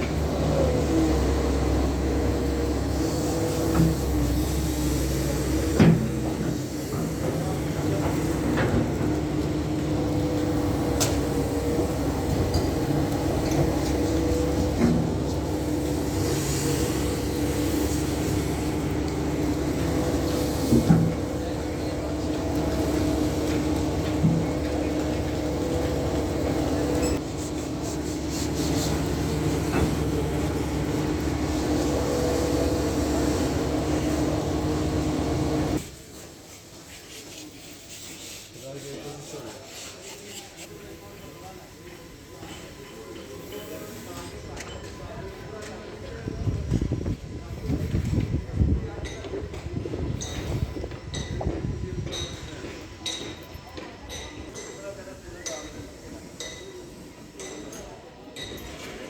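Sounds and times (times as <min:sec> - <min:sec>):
excavator diesel engine running: 0:00.0 - 0:35.8.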